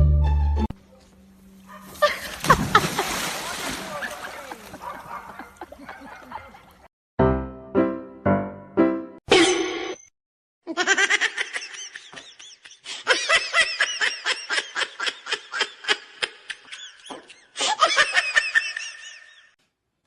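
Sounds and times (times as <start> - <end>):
high-pitched laughter: 10.7 - 19.5.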